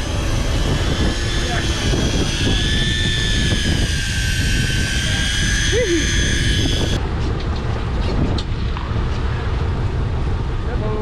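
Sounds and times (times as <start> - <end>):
electric fishing reel whining: 0.0 - 7.0.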